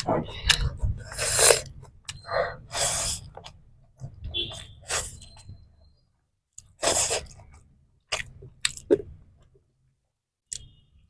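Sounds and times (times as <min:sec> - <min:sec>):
person chewing crunchy food: 0:06.6 - 0:09.1.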